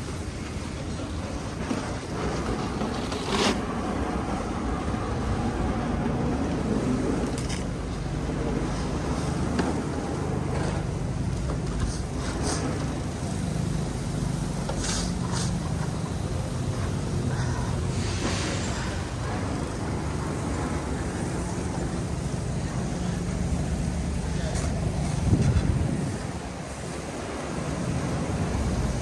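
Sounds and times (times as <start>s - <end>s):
traffic engine hum: 0.0s - 29.0s
high hisses: 12.0s - 29.0s.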